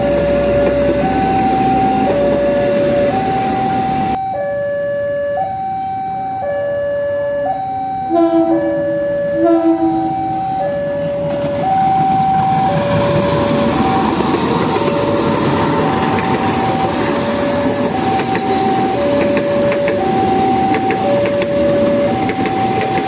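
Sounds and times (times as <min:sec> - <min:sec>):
passing train rumble: 0:00.0 - 0:04.2, 0:07.5 - 0:23.0
level crossing alarm two-tone: 0:00.0 - 0:23.0
locomotive horn blasts: 0:08.1 - 0:08.8, 0:09.4 - 0:10.2.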